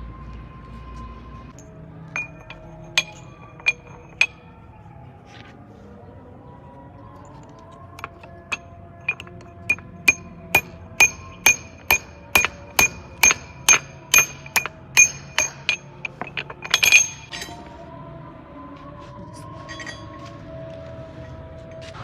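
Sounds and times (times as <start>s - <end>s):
hammer striking metal: 2.2s - 4.4s, 8.0s - 17.7s.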